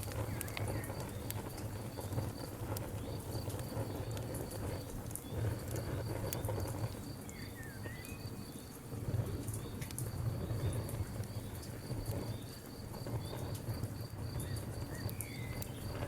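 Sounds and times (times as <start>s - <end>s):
campfire wood crackling: 0.0s - 16.0s
insect chirping: 4.8s - 8.8s, 10.4s - 16.0s.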